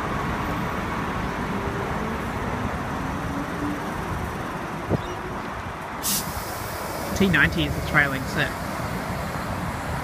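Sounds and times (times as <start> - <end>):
electric train rumbling: 0.0 - 10.0
brief hiss: 6.0 - 7.1.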